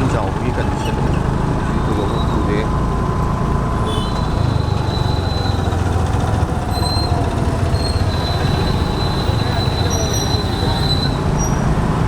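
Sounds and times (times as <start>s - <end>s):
motor scooter engine rumble: 0.0s - 12.0s.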